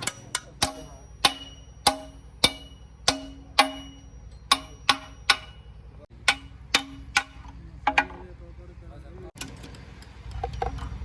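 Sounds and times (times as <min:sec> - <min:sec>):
hammer striking steel: 0:00.0 - 0:08.3.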